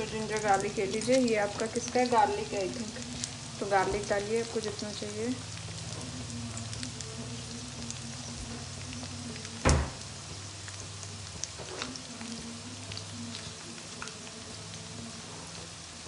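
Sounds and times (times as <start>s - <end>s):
onions sizzling in hot oil: 0.0s - 16.0s
loud knock: 9.6s - 10.0s.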